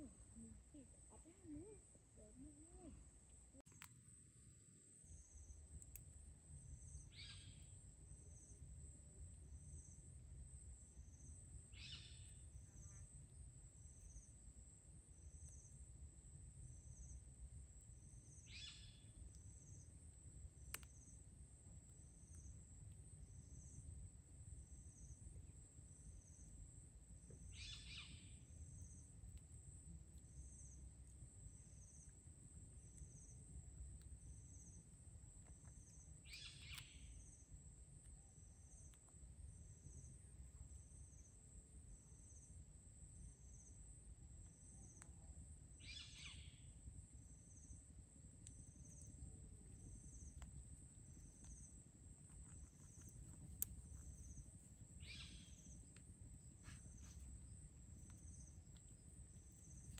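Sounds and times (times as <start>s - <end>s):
faint low rumble: 0.0s - 59.9s.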